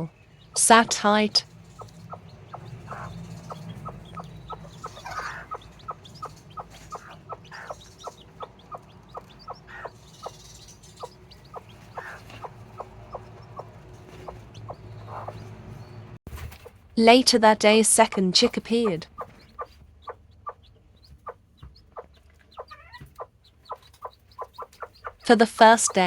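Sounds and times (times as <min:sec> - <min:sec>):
hen clucking softly: 0:01.7 - 0:15.5, 0:19.2 - 0:26.0.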